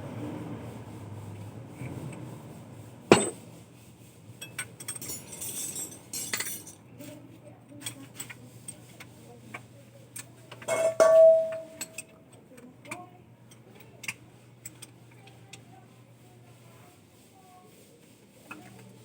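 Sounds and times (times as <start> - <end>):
small metal objects clinking: 4.4 - 6.8, 10.6 - 12.0
ringing metal clink: 10.7 - 12.0.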